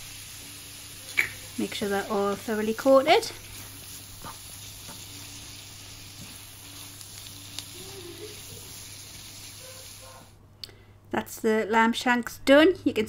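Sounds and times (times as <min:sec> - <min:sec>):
asparagus sizzling in a frying pan: 0:00.0 - 0:10.4.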